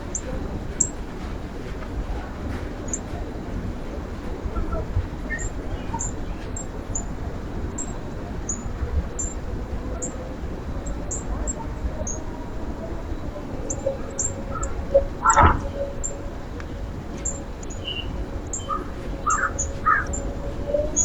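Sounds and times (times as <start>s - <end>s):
low outdoor rumble: 0.0s - 21.0s
small birds chirping: 4.4s - 21.0s.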